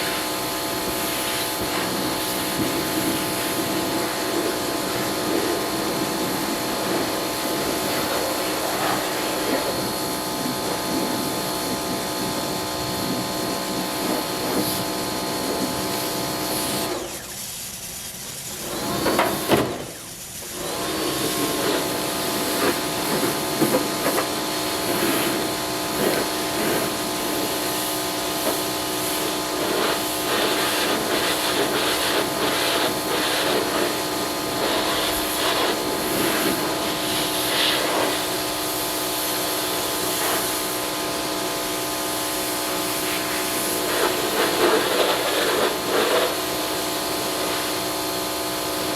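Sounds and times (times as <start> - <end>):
yard machine motor humming: 20.6 - 48.8
hissing and rubbing noises: 43.0 - 46.4.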